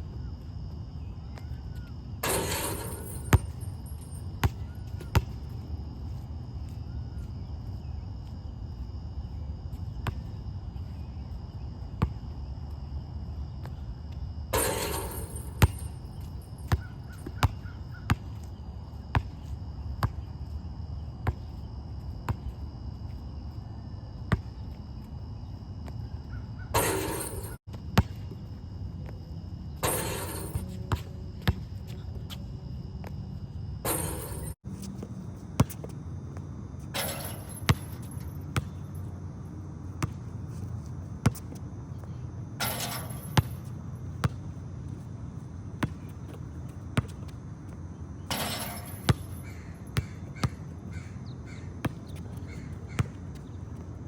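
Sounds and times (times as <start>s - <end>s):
crickets chirring: 0.0s - 54.0s
ball rattling rim or net: 2.2s - 4.2s, 14.6s - 16.1s, 26.8s - 27.6s, 29.8s - 30.8s, 33.9s - 34.6s, 36.9s - 38.4s, 42.6s - 43.7s, 48.3s - 49.5s
basketball bouncing: 2.2s - 5.4s, 14.6s - 16.0s, 26.8s - 28.3s, 29.8s - 31.7s, 33.9s - 34.6s, 37.0s - 38.8s, 40.0s - 40.2s, 42.6s - 44.5s, 45.8s - 46.4s, 48.3s - 49.4s, 51.8s - 53.5s.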